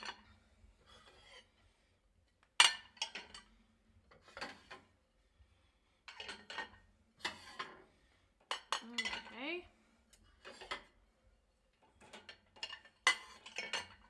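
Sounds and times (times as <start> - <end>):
plates clattering in dishwasher rack: 12.0 - 14.0.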